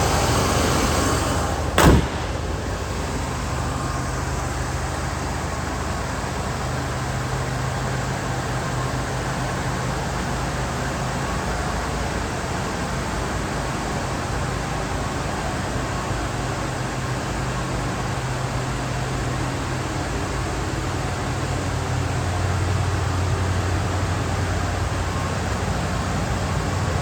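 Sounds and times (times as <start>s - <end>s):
car engine idling: 0.0s - 11.1s
loud slam: 1.7s - 4.1s.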